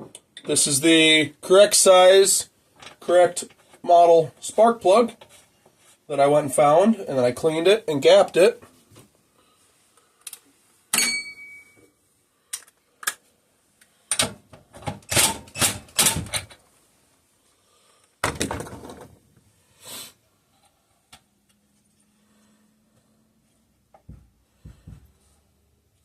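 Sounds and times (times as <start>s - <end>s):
ringing metallic clink: 11.0s - 11.8s.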